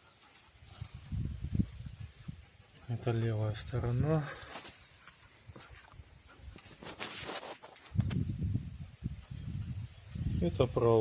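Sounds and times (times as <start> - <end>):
footsteps: 3.6 - 8.3
rustling: 3.6 - 8.3.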